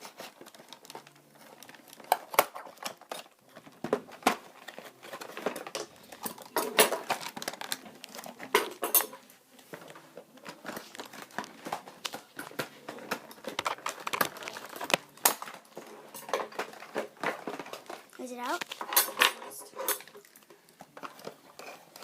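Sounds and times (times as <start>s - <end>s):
plastic packaging being pried open: 0.0s - 8.8s, 10.4s - 18.9s.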